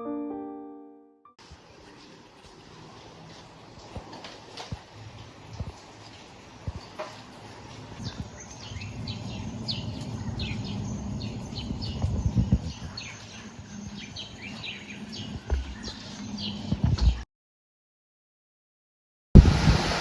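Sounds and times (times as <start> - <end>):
low rumbling background noise: 1.4 - 17.1
birds chirping: 5.7 - 17.2.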